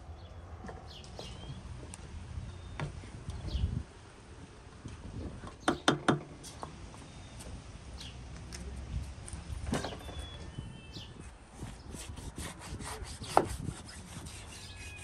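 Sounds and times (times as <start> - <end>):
bird chirps: 0.2 - 1.6, 9.8 - 11.3, 14.5 - 15.0.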